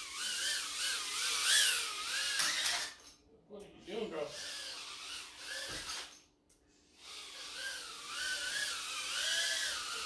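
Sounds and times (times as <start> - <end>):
drone motors whining: 0.0 - 2.9, 4.4 - 6.1, 7.0 - 10.0.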